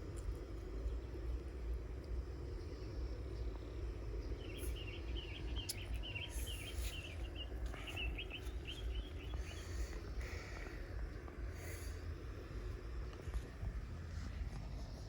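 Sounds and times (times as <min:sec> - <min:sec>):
steady low rumble: 0:00.0 - 0:15.0
bird singing chattering notes: 0:04.2 - 0:09.9.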